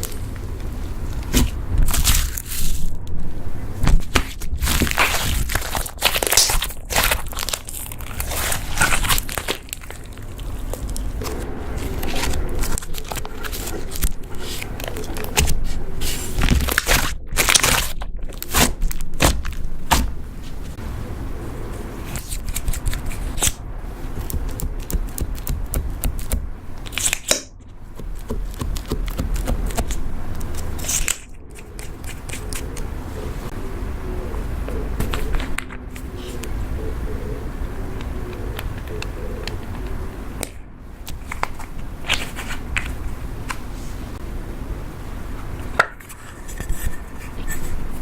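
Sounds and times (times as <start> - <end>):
slime kneaded by hand: 22.1 - 32.9.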